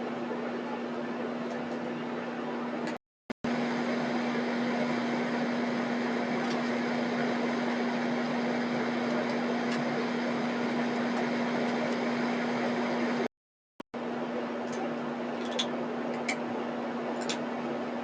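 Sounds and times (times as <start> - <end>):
steady mechanical hum: 0.0 - 13.3, 14.0 - 18.0.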